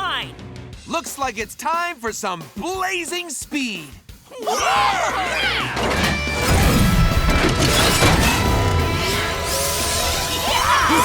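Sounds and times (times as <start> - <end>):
crash-like hits: 5.8 - 9.5.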